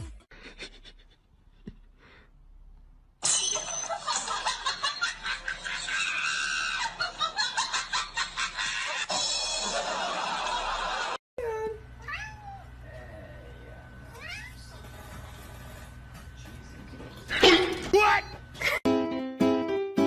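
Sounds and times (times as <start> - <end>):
laughter in choppy bursts: 0.3 - 1.4.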